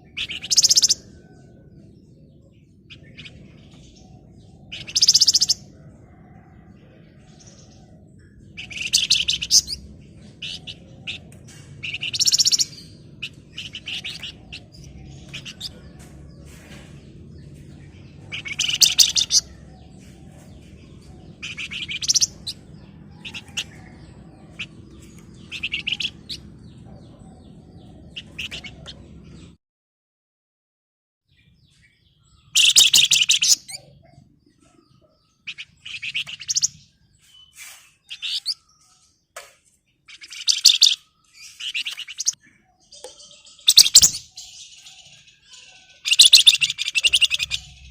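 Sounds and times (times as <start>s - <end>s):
bird chirps: 0.0s - 29.6s, 31.3s - 47.9s
songbird rattling trills: 18.3s - 19.6s, 40.1s - 42.4s, 46.0s - 47.9s.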